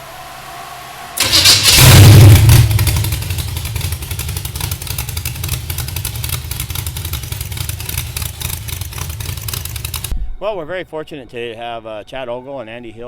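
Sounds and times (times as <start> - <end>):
engine starting and idling: 1.2 - 10.1.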